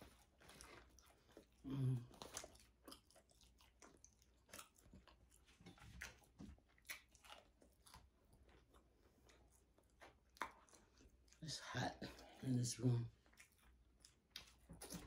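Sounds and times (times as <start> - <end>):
person chewing food: 0.0 - 12.4, 13.1 - 15.0.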